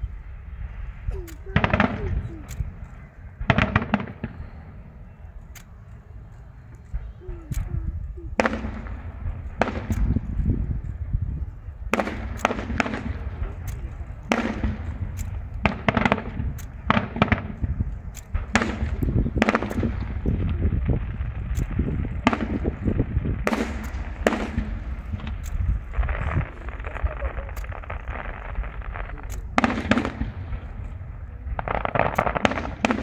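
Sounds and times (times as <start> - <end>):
continuous low rumble: 0.0 - 33.0
firework bangs: 0.1 - 5.2, 6.9 - 33.0.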